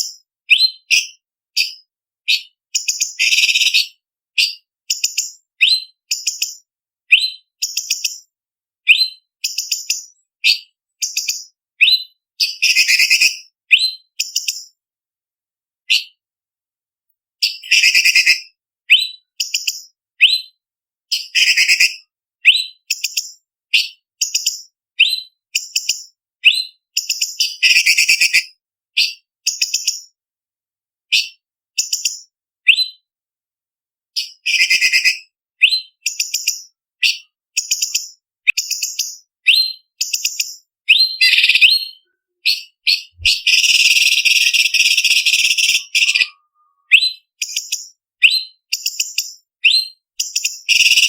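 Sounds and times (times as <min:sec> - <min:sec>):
bird chirping and whistling: 0:00.5 - 0:08.2, 0:08.9 - 0:14.7, 0:15.9 - 0:16.1, 0:17.4 - 0:20.5, 0:21.1 - 0:29.8, 0:31.1 - 0:33.0, 0:34.2 - 0:51.0
rapid bird chattering: 0:40.0 - 0:47.7, 0:50.3 - 0:51.0.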